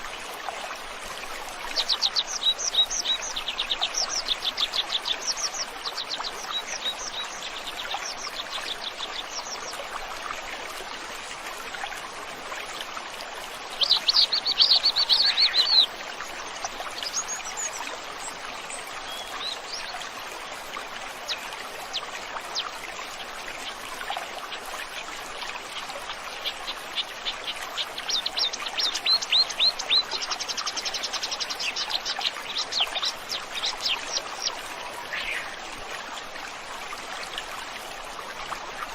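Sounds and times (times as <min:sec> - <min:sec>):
flowing stream: 0:00.0 - 0:38.9
songbirds chirping and trilling: 0:13.8 - 0:16.1, 0:25.7 - 0:35.8.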